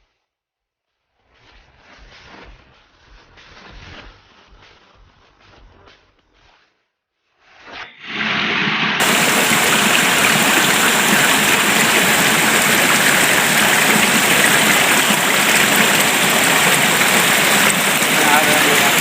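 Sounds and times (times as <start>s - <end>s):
water rushing: 8.0s - 19.0s.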